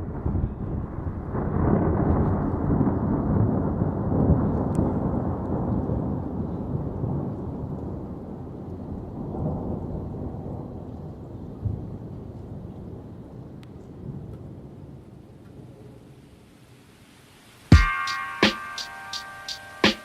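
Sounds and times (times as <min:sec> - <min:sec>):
rolling thunder: 0:00.0 - 0:15.4.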